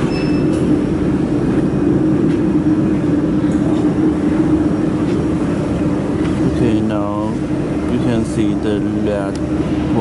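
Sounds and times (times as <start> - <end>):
machine humming drone: 0.0 - 10.0
short high beep: 0.1 - 0.6.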